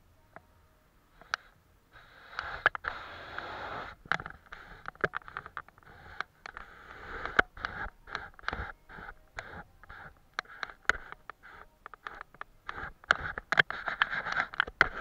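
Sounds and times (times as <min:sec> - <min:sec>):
brush and tools tapping: 0:03.8 - 0:15.0.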